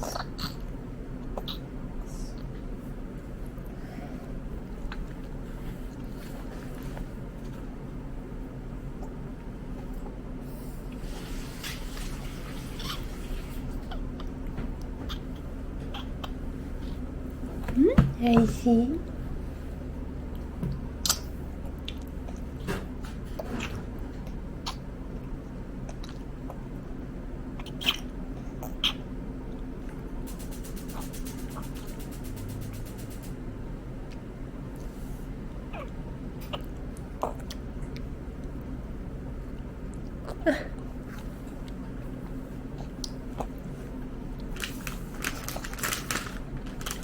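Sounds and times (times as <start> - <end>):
toddler chewing: 0.0 - 1.6, 20.3 - 26.7, 35.7 - 38.6, 39.6 - 45.7
steady low hum: 0.0 - 47.0.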